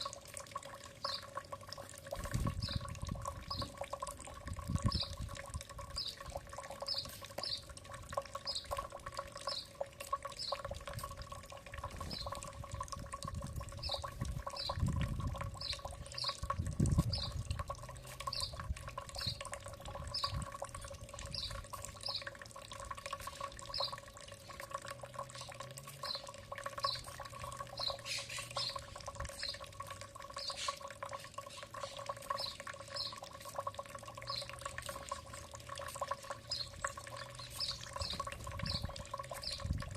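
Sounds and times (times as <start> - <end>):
bird chirping: 1.0 - 1.3, 2.6 - 2.9, 3.5 - 3.8, 6.0 - 7.7, 8.4 - 8.8, 9.4 - 9.7, 10.4 - 10.7, 12.0 - 12.4, 13.8 - 14.8, 15.6 - 16.4, 17.1 - 17.4, 18.2 - 18.6, 19.2 - 19.5, 21.3 - 22.3, 23.7 - 24.0, 25.3 - 29.6, 30.4 - 30.8, 31.5 - 33.2, 34.2 - 34.6, 36.4 - 39.7.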